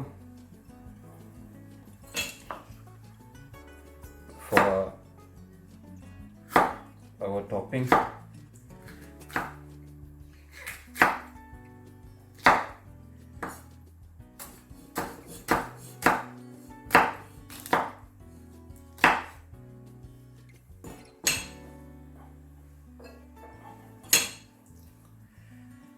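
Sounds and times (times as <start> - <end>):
knife chopping on cutting board: 2.1 - 2.7, 4.4 - 5.0, 6.5 - 6.9, 7.8 - 8.2, 8.8 - 9.8, 10.5 - 11.4, 12.4 - 12.8, 13.4 - 13.6, 14.4 - 18.1, 19.0 - 19.4, 20.9 - 21.6.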